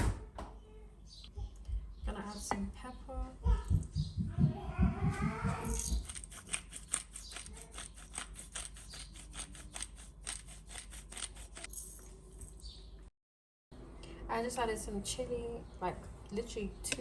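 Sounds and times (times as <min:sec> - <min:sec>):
pepper mill grinding: 0:05.6 - 0:12.6.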